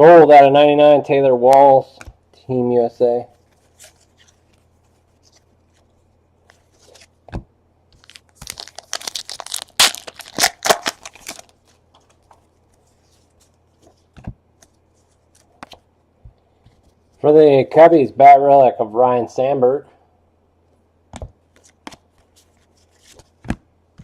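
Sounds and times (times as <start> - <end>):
wrapper being torn and crinkled: 8.0 - 11.7.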